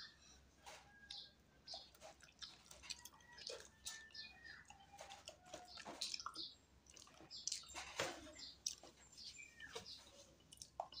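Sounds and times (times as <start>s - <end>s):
wet chewing: 1.7s - 11.0s.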